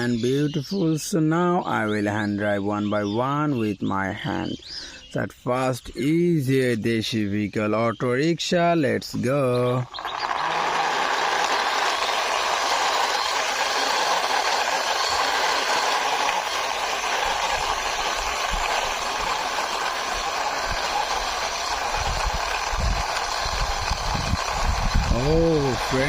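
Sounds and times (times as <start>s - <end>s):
toy wheels rolling with rattle: 9.8s - 26.0s.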